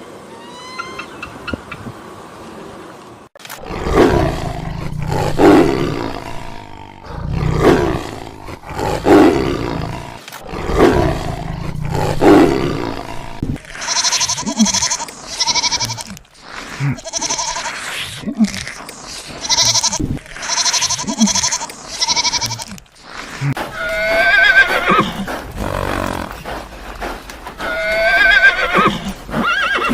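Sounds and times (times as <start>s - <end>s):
big cat roaring: 3.6s - 13.6s
goat bleating: 13.8s - 16.2s, 16.9s - 17.8s, 19.3s - 22.8s.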